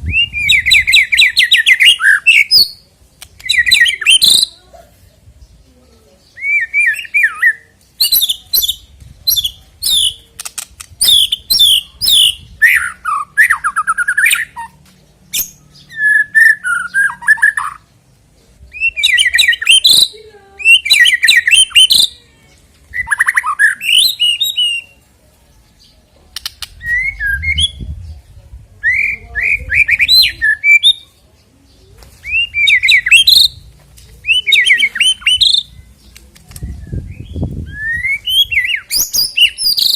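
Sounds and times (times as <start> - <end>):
bird singing whistles and trills: 0.0 - 2.8, 3.4 - 4.5, 6.2 - 10.2, 11.0 - 17.9, 18.7 - 22.2, 22.9 - 25.0, 26.4 - 28.1, 28.8 - 31.1, 32.2 - 33.6, 34.2 - 39.9.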